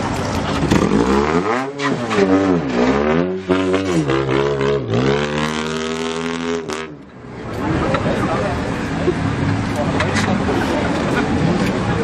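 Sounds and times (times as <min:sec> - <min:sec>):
engine revving: 0:00.6 - 0:07.0.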